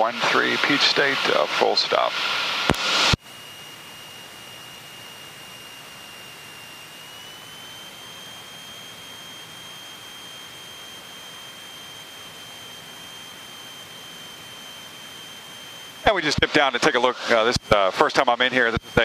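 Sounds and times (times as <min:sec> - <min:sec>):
high-pitched aircraft whine: 0:00.0 - 0:19.0
intercom hiss: 0:16.0 - 0:19.0.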